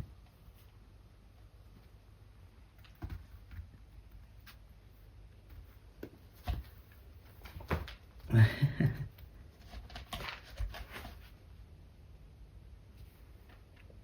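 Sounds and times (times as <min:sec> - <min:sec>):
cats scuffling: 0:00.0 - 0:08.4, 0:09.0 - 0:11.5.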